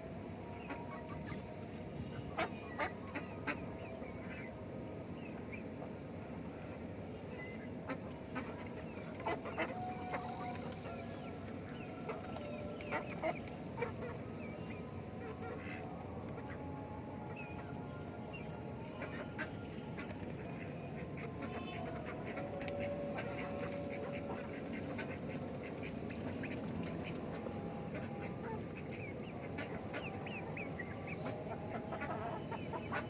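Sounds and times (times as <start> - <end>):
ducks quacking: 21.0 - 33.0.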